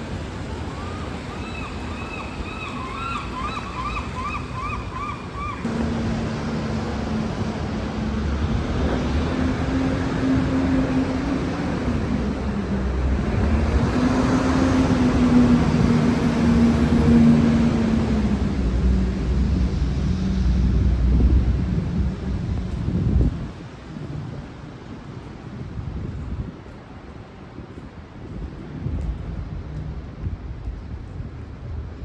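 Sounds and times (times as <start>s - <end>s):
vehicle engine hum: 4.0s - 25.0s.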